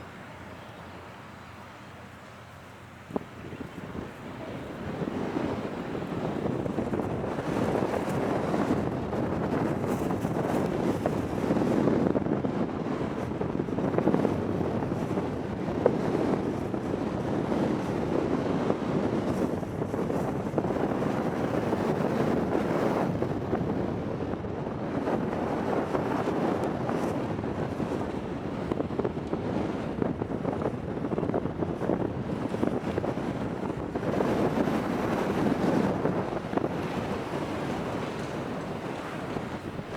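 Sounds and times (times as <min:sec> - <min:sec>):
sea waves: 0:00.0 - 0:11.6, 0:32.2 - 0:39.9
wind buffeting microphone: 0:02.6 - 0:39.9.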